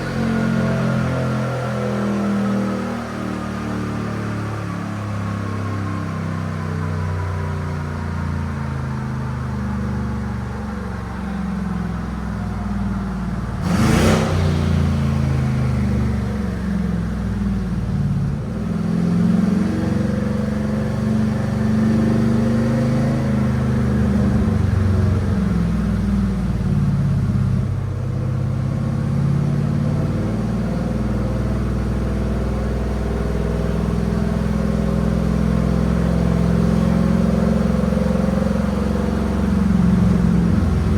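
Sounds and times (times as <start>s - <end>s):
pickup engine running: 22.5s - 40.9s.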